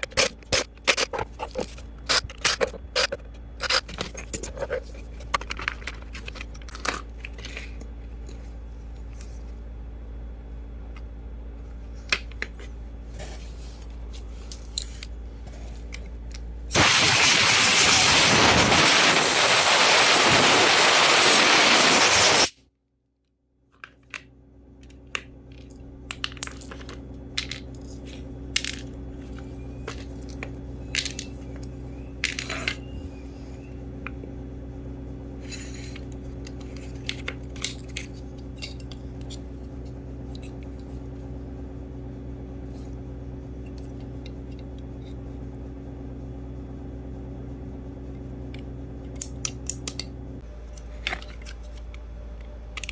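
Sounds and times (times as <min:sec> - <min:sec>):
pressurized gas jet hissing: 0:16.8 - 0:22.5.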